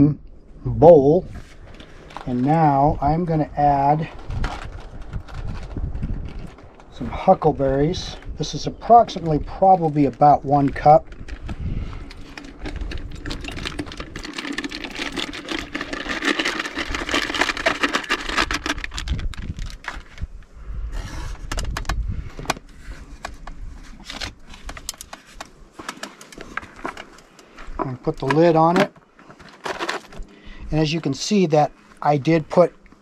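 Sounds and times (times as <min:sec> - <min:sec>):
berries pattering into canister: 0:08.5 - 0:20.2
canister being handled: 0:09.1 - 0:20.3, 0:21.4 - 0:30.4.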